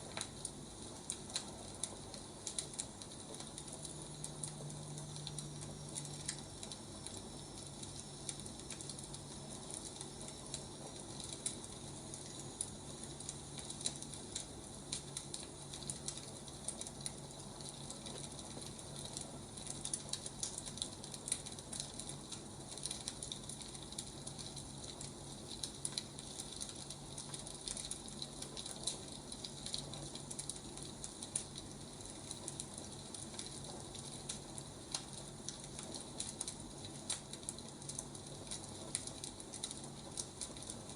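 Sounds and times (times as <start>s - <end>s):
steady low hum: 0.0s - 40.9s
wood fire crackling: 0.0s - 40.9s.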